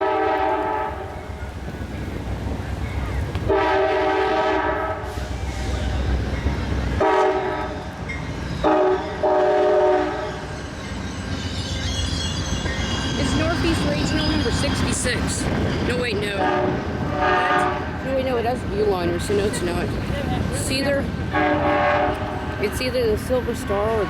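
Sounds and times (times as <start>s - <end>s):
train horn blasts: 0.0s - 1.2s, 3.5s - 5.4s, 7.0s - 7.9s, 8.6s - 10.5s, 16.3s - 18.0s, 21.3s - 22.8s
train rumbling: 0.0s - 24.0s.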